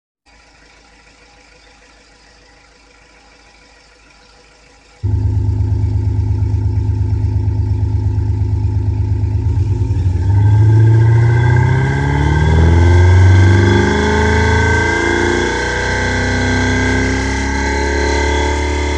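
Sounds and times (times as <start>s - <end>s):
simulated engine exhaust revving: 0.3s - 18.9s.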